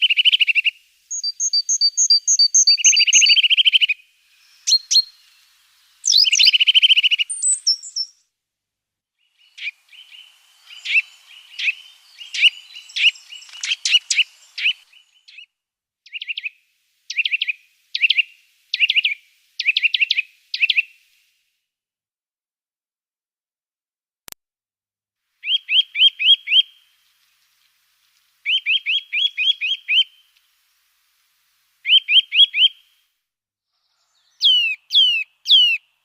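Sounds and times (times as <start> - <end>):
songbird buzzy trill: 0.0 - 8.2, 9.2 - 15.5, 16.1 - 21.2, 25.4 - 30.7, 34.1 - 36.0
short high bird chirps: 0.0 - 8.3, 9.2 - 15.5, 16.1 - 21.1, 25.4 - 27.0, 28.4 - 30.4, 31.8 - 32.9, 33.8 - 35.9.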